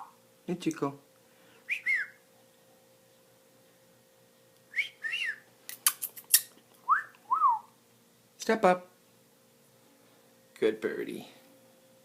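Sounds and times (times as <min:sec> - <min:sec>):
person whistling two notes: 0:04.7 - 0:05.4, 0:06.9 - 0:07.7.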